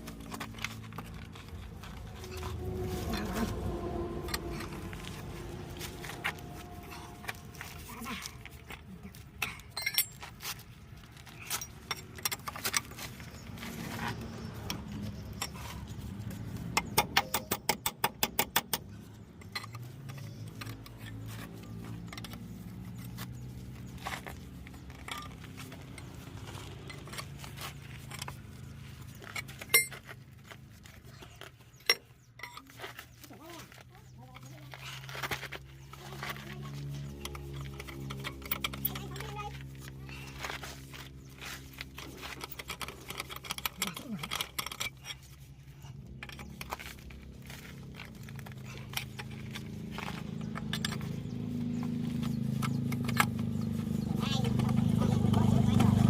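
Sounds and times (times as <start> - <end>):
steady low drone: 0.0 - 9.8
metal tools clinking: 0.0 - 56.0
sharp metallic clanks: 9.4 - 10.4.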